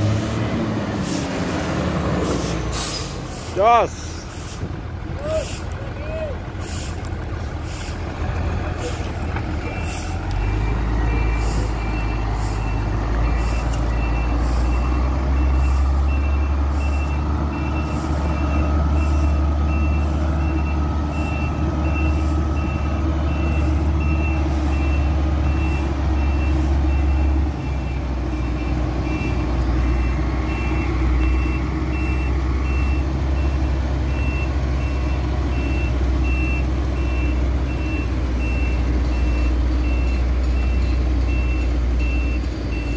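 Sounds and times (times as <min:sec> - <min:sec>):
truck engine running: 0:00.0 - 0:42.9
reversing alarm beeping: 0:09.6 - 0:42.9.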